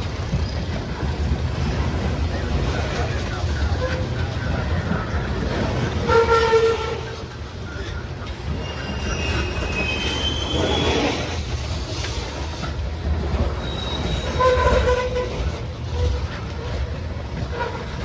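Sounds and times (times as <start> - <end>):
railcars rumbling on rails: 0.0 - 18.0
high wheel squeals: 6.0 - 11.5, 13.3 - 16.7.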